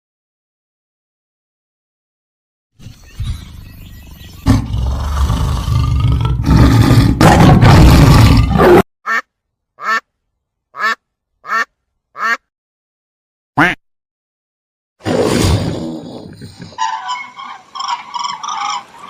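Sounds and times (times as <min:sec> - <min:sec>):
loud rough animal call: 0:04.4 - 0:08.8.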